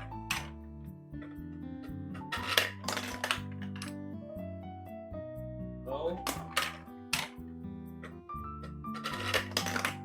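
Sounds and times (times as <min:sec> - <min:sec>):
background music: 0:00.0 - 0:10.0
marbles clattering down plastic track: 0:02.2 - 0:03.9, 0:08.9 - 0:10.0.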